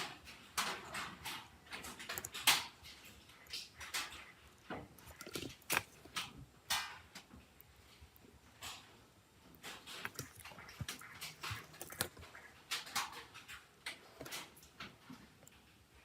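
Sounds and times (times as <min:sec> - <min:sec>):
small tools clicking and tapping: 0:00.3 - 0:07.8.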